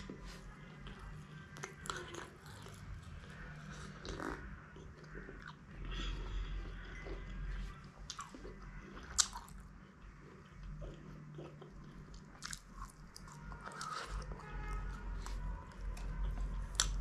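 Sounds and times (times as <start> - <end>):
person chewing and biting: 8.1 - 9.6, 10.8 - 14.4.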